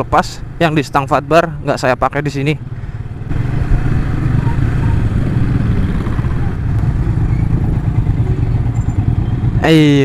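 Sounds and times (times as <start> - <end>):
road noise: 0.0 - 10.0
motorcycle engine running: 2.6 - 10.0
wind noise: 3.2 - 8.0.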